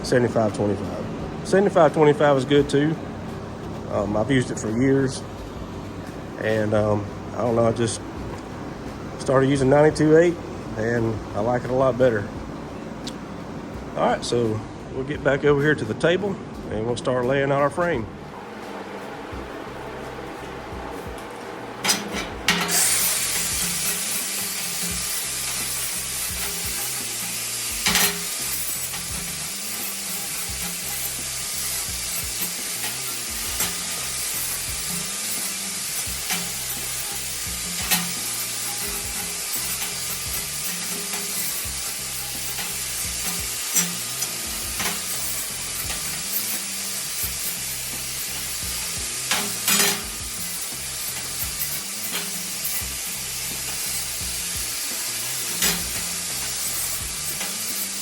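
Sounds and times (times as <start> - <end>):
welder arc crackling sizzle: 17.8 - 58.0.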